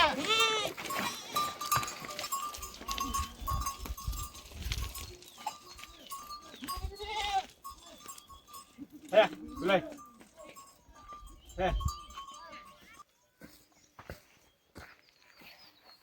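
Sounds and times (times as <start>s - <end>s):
livestock bleating: 0.0s - 1.9s, 6.6s - 10.1s.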